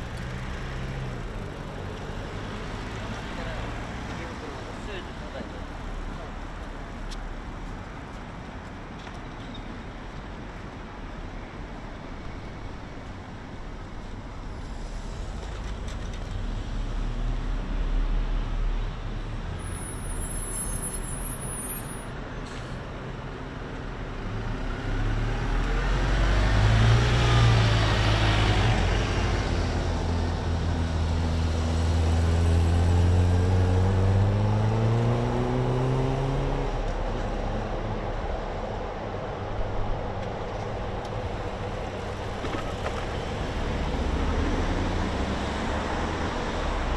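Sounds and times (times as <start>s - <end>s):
low traffic rumble: 0.0s - 46.9s
engine accelerating away: 24.8s - 36.8s.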